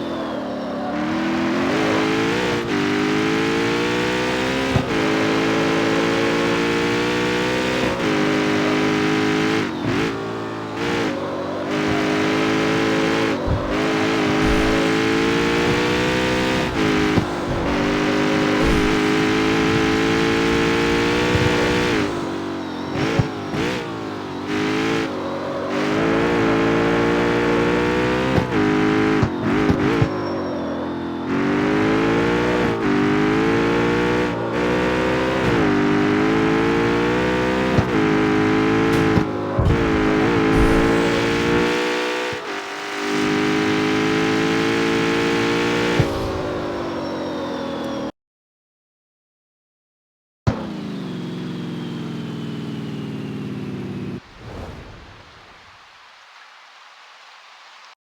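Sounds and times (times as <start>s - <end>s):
car engine revving through gears: 0.0s - 48.1s, 50.5s - 55.0s.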